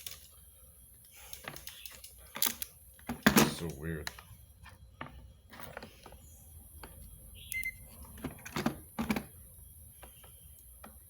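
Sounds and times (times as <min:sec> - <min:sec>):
short high multimeter beep: 0:07.4 - 0:07.8.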